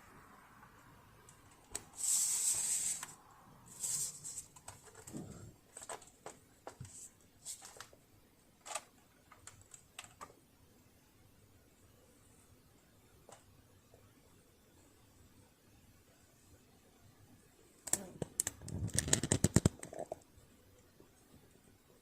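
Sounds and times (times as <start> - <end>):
spray can hissing: 2.0 - 3.1.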